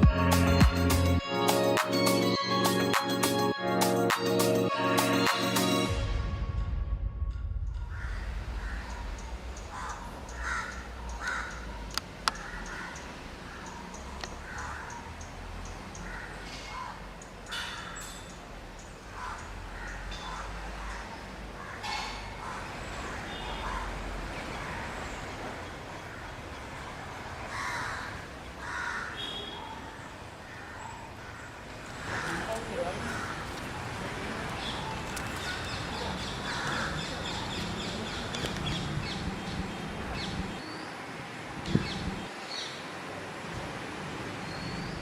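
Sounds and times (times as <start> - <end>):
low rumble: 5.9 - 11.0
steady background noise: 7.5 - 45.0
harsh cawing animal calls: 7.9 - 15.2, 15.9 - 18.0, 19.1 - 25.1, 27.4 - 39.2.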